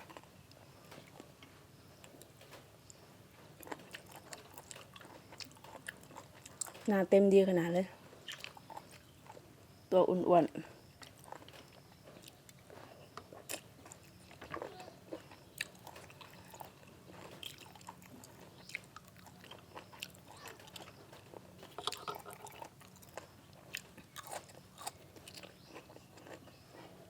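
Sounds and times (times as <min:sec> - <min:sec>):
person chewing snail meat: 0:03.5 - 0:06.9, 0:08.2 - 0:09.4, 0:10.9 - 0:27.0.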